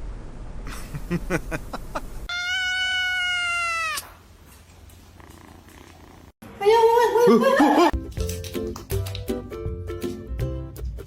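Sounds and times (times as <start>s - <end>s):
cat meowing: 2.3s - 4.2s.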